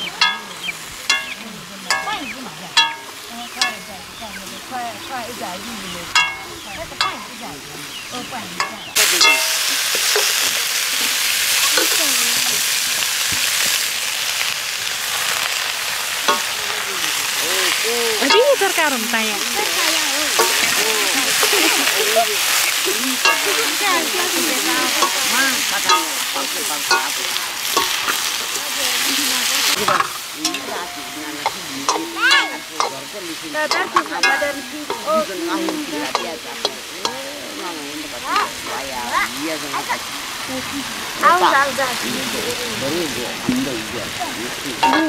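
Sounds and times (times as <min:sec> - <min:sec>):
food sizzling in hot oil: 0:00.0 - 0:45.0
metal ladle scraping a wok: 0:08.6 - 0:16.6, 0:19.6 - 0:37.6.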